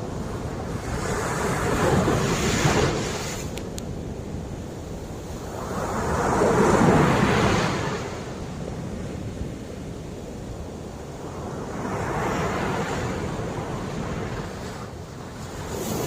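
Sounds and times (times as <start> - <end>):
ocean waves breaking: 0.4 - 3.5, 11.0 - 16.0.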